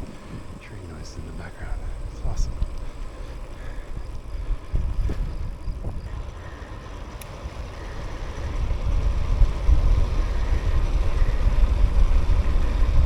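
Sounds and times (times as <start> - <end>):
low train rumble: 0.0 - 13.0.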